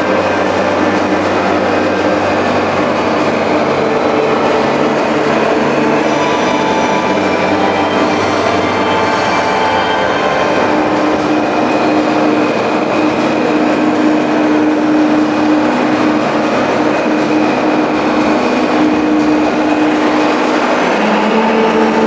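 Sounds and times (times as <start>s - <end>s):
tractor engine droning: 0.0s - 22.0s.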